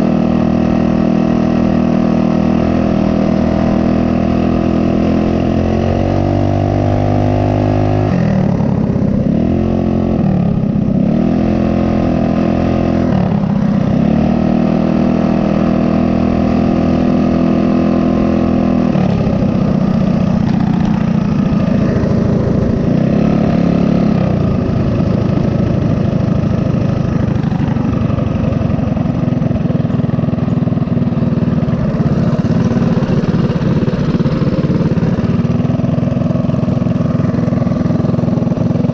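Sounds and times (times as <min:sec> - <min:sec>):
mini bike engines revving: 0:00.0 - 0:38.9.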